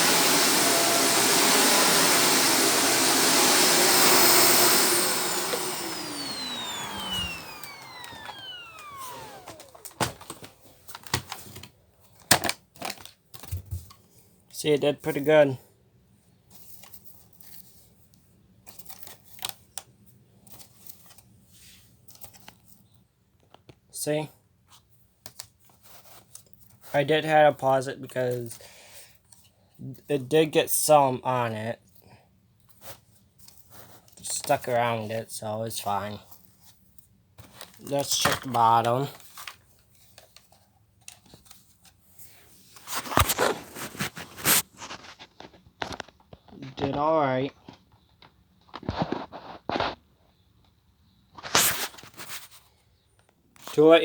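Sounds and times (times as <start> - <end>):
plastic clicks and rustles: 7.0 - 14.0
soft handling clicks and rustles: 16.4 - 23.9, 32.6 - 34.6, 36.3 - 50.8.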